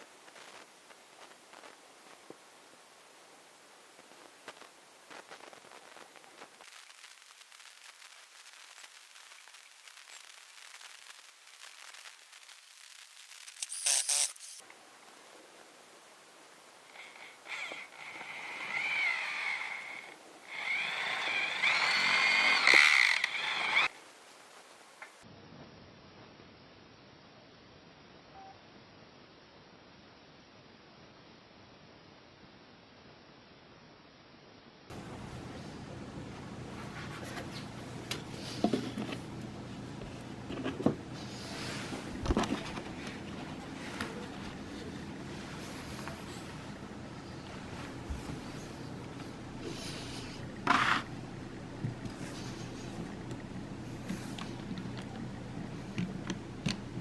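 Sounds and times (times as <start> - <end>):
power tool motor whining: 13.6 - 14.6, 16.9 - 23.9.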